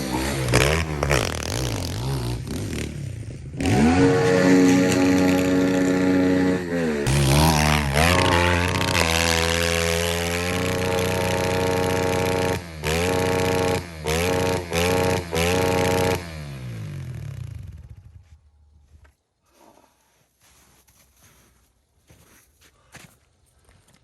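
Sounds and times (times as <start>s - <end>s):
pit bike engine revving: 0.0s - 18.0s.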